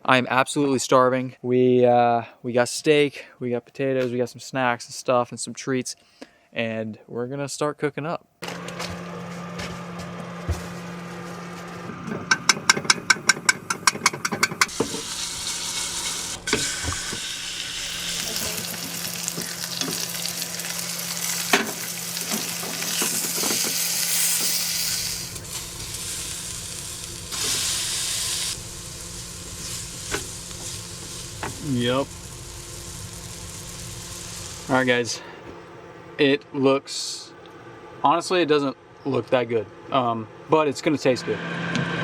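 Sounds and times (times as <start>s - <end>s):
utensils knocking: 12.0s - 15.2s
food sizzling in a pan: 14.7s - 35.2s.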